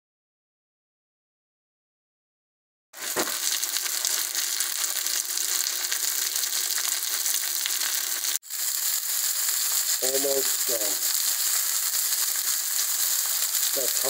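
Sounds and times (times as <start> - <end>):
fish frying in oil: 3.0 - 14.0.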